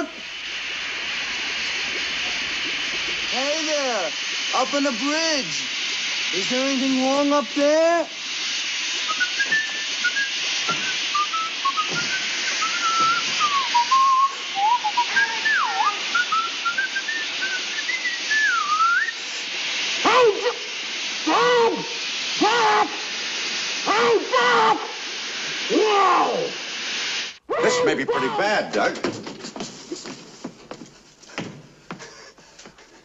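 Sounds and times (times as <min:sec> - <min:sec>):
steam hissing: 0:00.0 - 0:33.0
short whistled notes: 0:09.0 - 0:19.2
person whistling a tune: 0:09.1 - 0:19.2.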